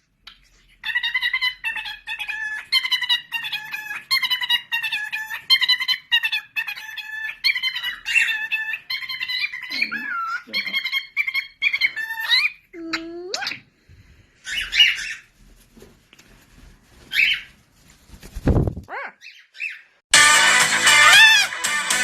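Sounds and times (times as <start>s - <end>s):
bird trilling and chattering: 0.3s - 13.7s.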